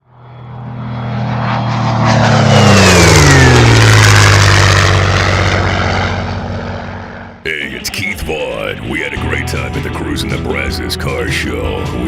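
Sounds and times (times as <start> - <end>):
propeller aircraft flying past: 0.0 - 12.0.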